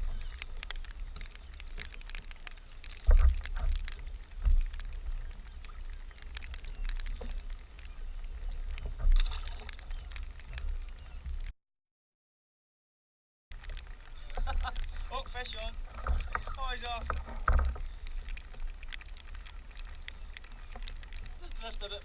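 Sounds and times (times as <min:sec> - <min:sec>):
small clicks and knocks: 0:00.0 - 0:11.5, 0:13.6 - 0:22.0
water slapping against hull: 0:00.0 - 0:11.5, 0:13.6 - 0:22.0
low thumps on hull: 0:14.4 - 0:18.7.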